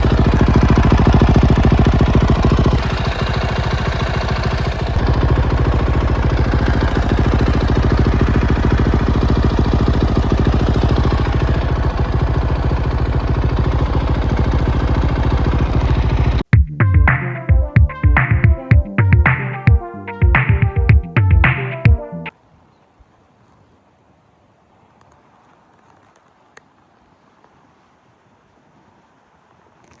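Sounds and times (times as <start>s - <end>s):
motorcycle engine idling: 0.0s - 22.1s.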